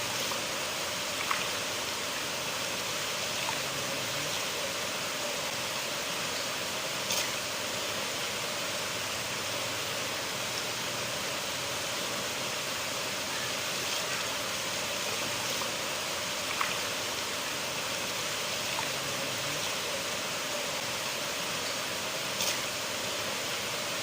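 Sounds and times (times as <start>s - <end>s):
river water rushing: 0.0s - 24.0s
faint splashes: 1.0s - 1.9s, 3.2s - 4.5s, 13.3s - 20.6s.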